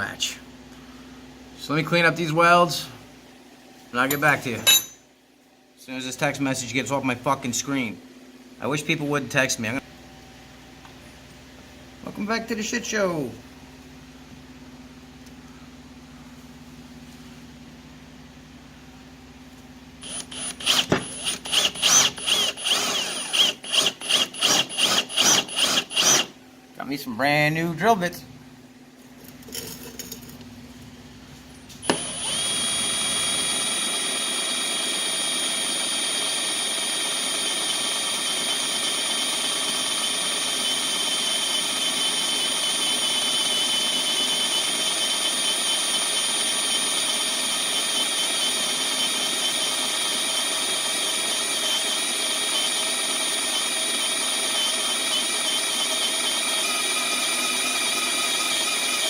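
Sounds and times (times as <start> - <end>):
electric drill boring into metal: 20.0 - 26.3, 31.8 - 59.0.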